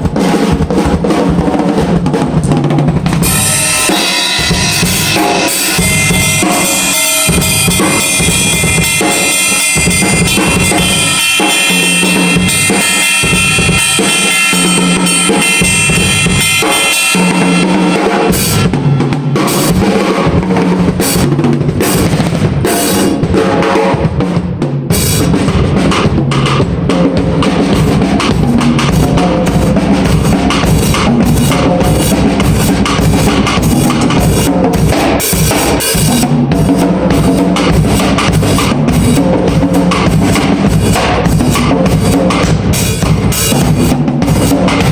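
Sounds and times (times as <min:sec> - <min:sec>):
drum kit playing: 0:00.0 - 0:44.9
cymbals ringing: 0:03.2 - 0:20.4.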